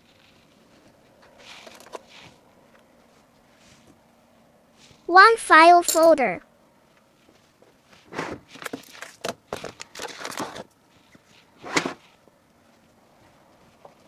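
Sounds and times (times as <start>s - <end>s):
file folder rustling and tapping: 1.2s - 2.4s, 7.7s - 10.7s, 11.6s - 12.1s.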